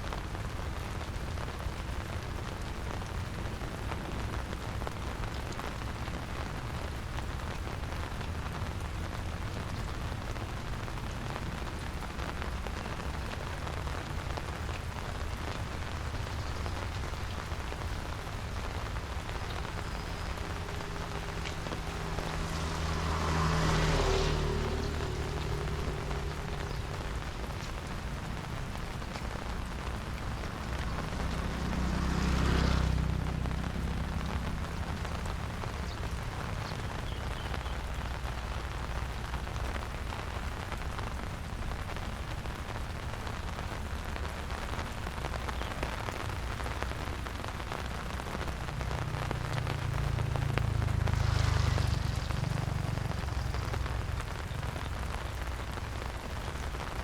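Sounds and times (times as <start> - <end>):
steady rain: 0.0 - 57.0
low rumble: 17.5 - 32.0.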